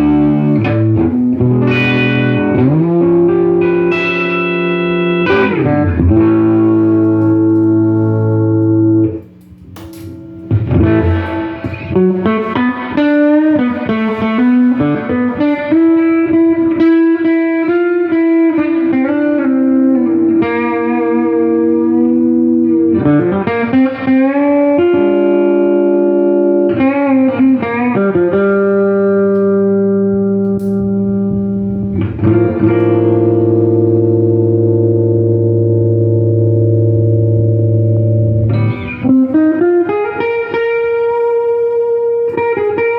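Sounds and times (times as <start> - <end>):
electric guitar with reverb: 0.0 - 42.9.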